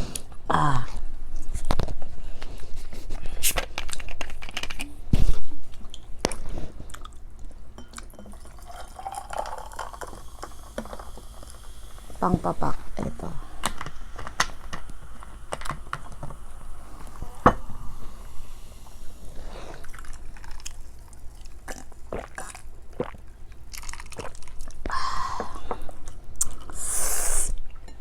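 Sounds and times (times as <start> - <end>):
person chewing crunchy food: 2.5 - 7.7, 18.2 - 25.0.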